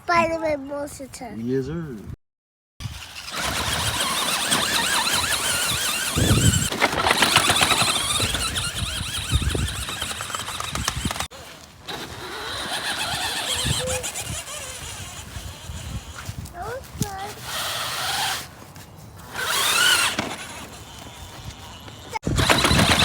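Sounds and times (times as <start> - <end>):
toy truck motor squealing: 2.8 - 16.4, 17.1 - 18.5, 19.2 - 23.0.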